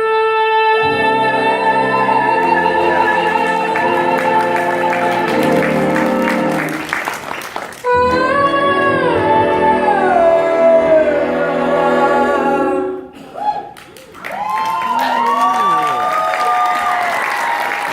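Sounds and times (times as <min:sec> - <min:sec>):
woman singing: 0:00.0 - 0:06.6, 0:07.9 - 0:13.0
horn section holding a chord: 0:00.0 - 0:13.0
soft sustained backing: 0:00.0 - 0:13.1.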